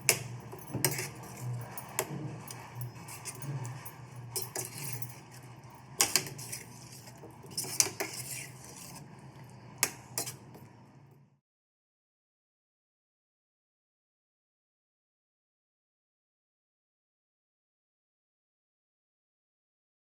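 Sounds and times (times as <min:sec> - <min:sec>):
metal utensil scraping a pan: 0:00.0 - 0:10.6.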